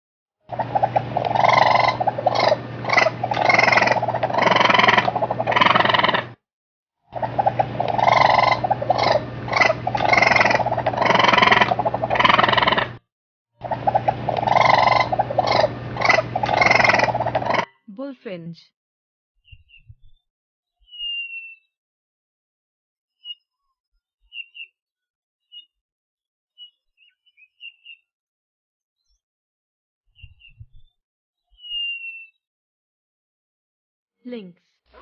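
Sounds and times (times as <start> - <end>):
steady low hum: 0.5 - 6.3, 7.2 - 13.0, 13.6 - 17.7
raccoon chattering and trilling: 0.5 - 6.4, 7.2 - 13.0, 13.6 - 17.7.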